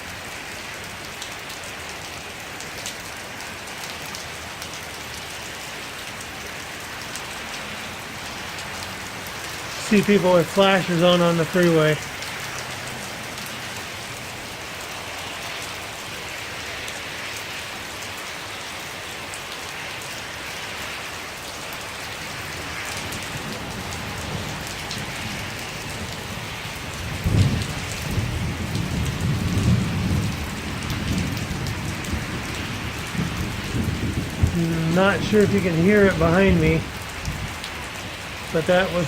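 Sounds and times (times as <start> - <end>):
heavy rain pouring: 0.0 - 39.0
low thunder rumble: 23.2 - 37.6.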